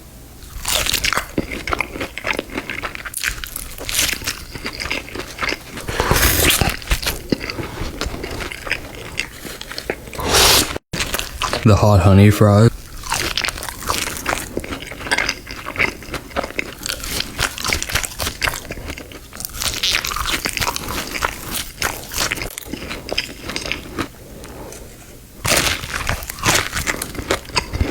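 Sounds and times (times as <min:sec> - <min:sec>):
crunchy fries being chewed: 0:00.4 - 0:11.6, 0:12.8 - 0:27.9.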